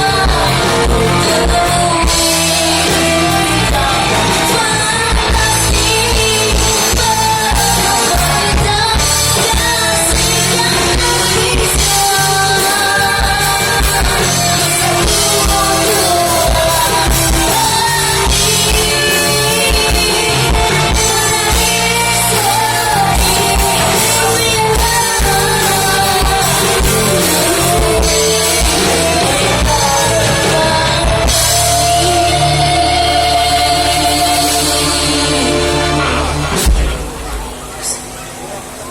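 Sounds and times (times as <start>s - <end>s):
person singing: 0.0s - 37.0s
pop-rock band playing: 0.0s - 38.9s.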